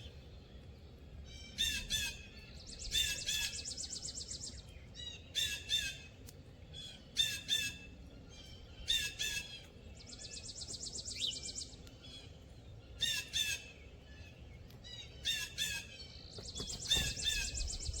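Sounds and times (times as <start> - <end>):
harsh hoarse bird calls: 15.1 - 18.0.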